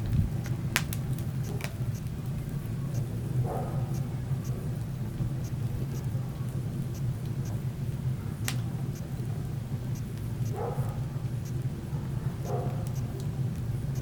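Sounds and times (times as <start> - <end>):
sharp pop of fire: 0.0 - 1.8
wood fire crackling: 0.0 - 14.0.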